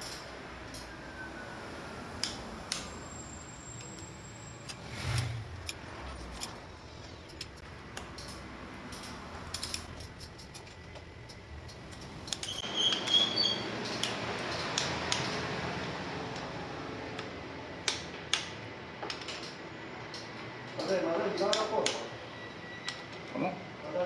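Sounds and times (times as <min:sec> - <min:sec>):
steady background noise: 0:00.0 - 0:24.0
metallic tool clicks and clinks: 0:04.6 - 0:12.6.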